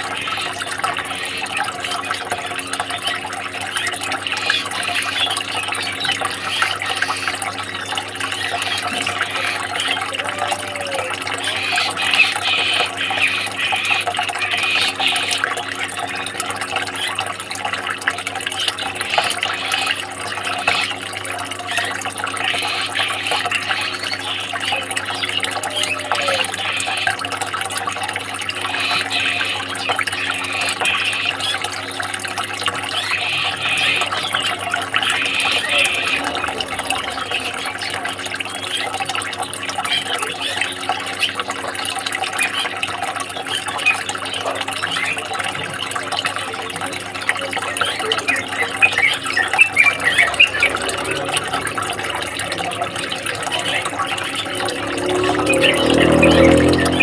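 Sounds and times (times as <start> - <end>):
water trickling and splashing: 0.0 - 57.0
constant low hum: 46.2 - 55.1.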